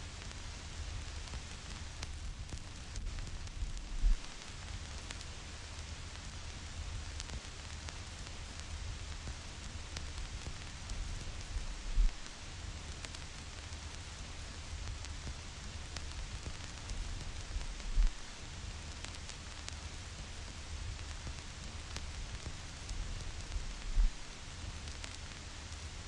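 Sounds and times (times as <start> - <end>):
vinyl record hiss and crackle: 0.0 - 26.0
low rumble: 3.4 - 4.2, 17.2 - 18.3, 23.3 - 24.3.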